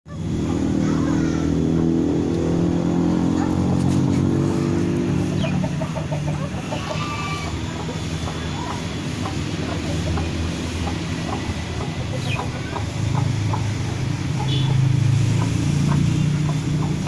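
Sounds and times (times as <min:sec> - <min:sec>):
low engine-like drone: 0:00.1 - 0:17.0
high bird chirps: 0:08.5 - 0:17.0.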